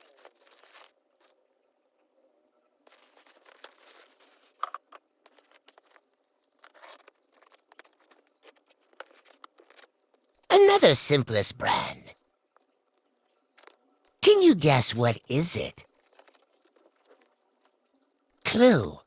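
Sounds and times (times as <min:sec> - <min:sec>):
packaging crinkling and tearing: 0:00.0 - 0:01.3, 0:02.9 - 0:10.4.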